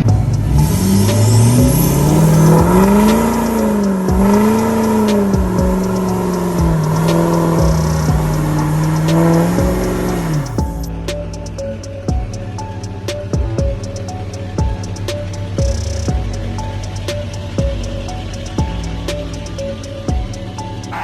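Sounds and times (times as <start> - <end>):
truck engine revving: 0.0 - 10.6.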